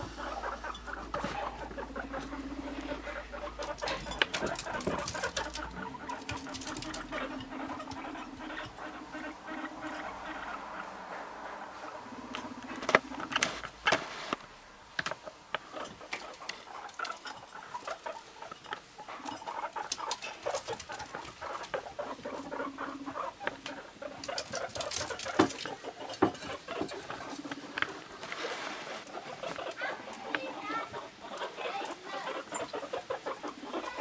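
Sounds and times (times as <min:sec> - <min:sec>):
guinea pig buzzing rumbles: 0:00.0 - 0:13.8, 0:15.2 - 0:28.3, 0:29.0 - 0:34.0
guinea pigs scurrying: 0:00.0 - 0:34.0
sharp clicks and pattering: 0:00.2 - 0:10.5, 0:15.8 - 0:22.7, 0:23.4 - 0:28.0.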